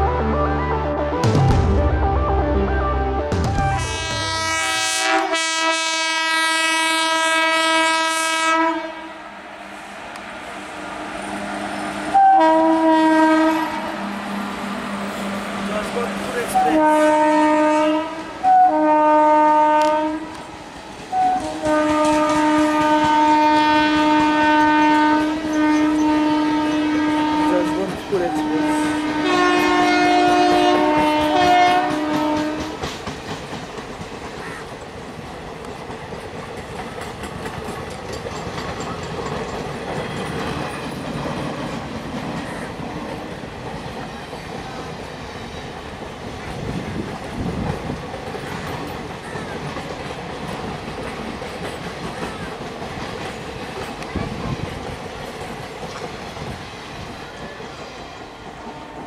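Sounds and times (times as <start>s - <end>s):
train wheels rumbling on rails: 3.3s - 59.0s
train horn blasts: 3.6s - 9.4s, 11.4s - 20.5s, 21.1s - 32.9s.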